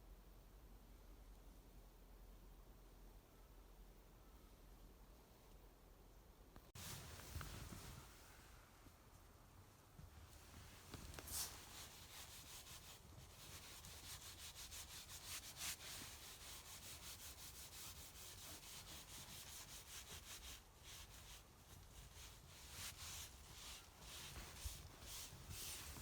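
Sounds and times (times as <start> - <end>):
hand rubbing on wooden board: 10.4 - 26.0.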